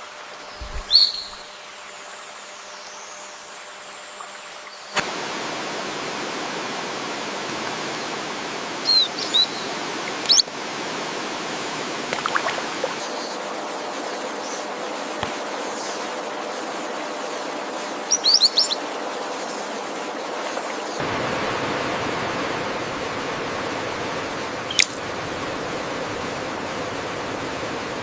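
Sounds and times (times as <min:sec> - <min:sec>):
flowing water rushing: 0:00.0 - 0:28.0
bird chirps: 0:00.6 - 0:01.6, 0:08.8 - 0:09.7, 0:18.1 - 0:18.8, 0:24.7 - 0:25.0.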